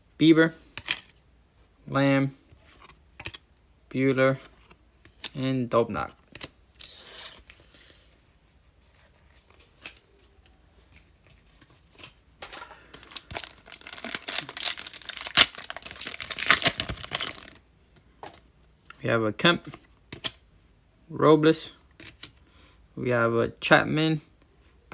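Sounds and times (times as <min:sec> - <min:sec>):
foil wrapper tearing and crinkling: 0:13.0 - 0:17.6.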